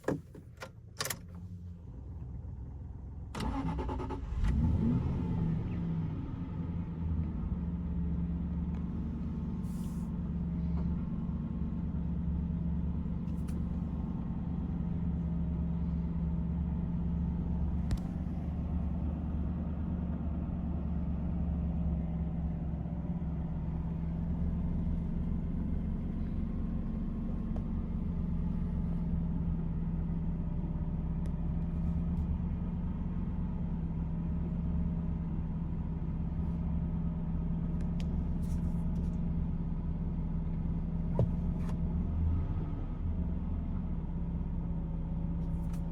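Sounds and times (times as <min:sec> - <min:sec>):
car engine idling: 0:06.5 - 0:41.9.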